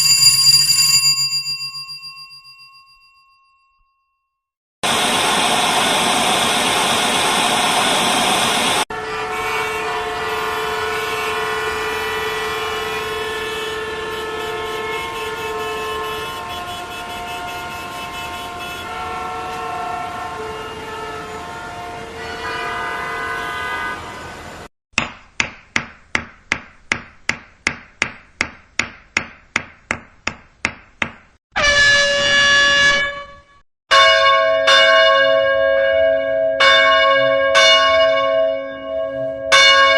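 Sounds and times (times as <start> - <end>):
bell ringing: 0.0 - 4.2
car horns sounding: 8.9 - 24.6.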